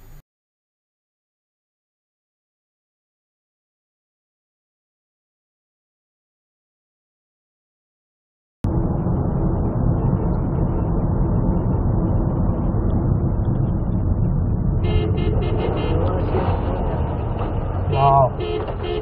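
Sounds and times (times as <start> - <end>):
vehicle road and engine rumble: 8.7 - 19.0.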